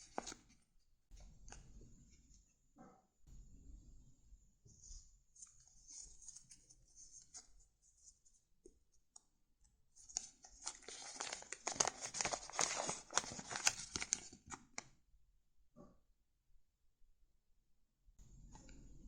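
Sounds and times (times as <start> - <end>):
paper crinkling: 0.0 - 0.5, 10.0 - 14.8.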